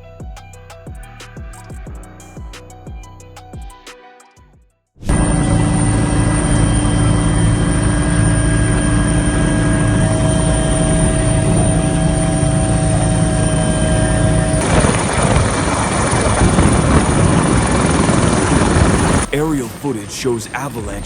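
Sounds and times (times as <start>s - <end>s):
helicopter engine and rotor drone: 5.1s - 21.0s.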